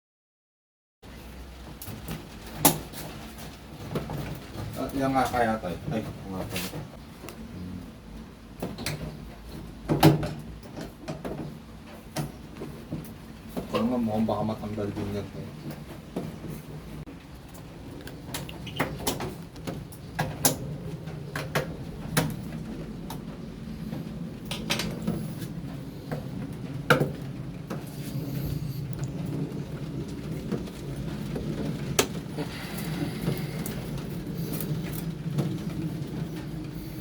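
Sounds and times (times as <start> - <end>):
steady low hum: 11.5 - 37.0.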